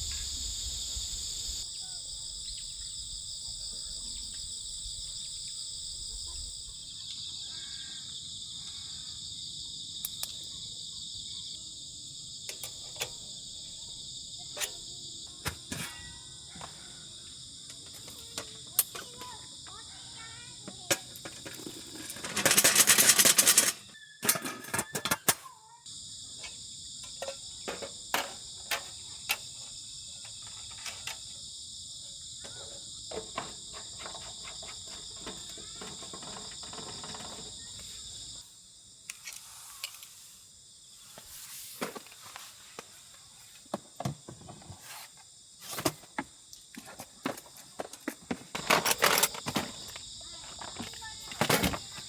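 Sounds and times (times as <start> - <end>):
crickets chirping: 0.0 - 52.0
small clicks and knocks: 12.5 - 13.2.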